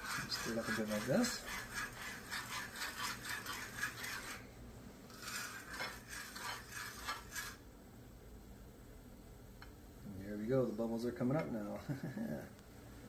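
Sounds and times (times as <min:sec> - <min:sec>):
utensil scraping pot bottom: 0:00.0 - 0:04.4, 0:05.1 - 0:07.6
thick glaze bubbling: 0:00.0 - 0:07.6.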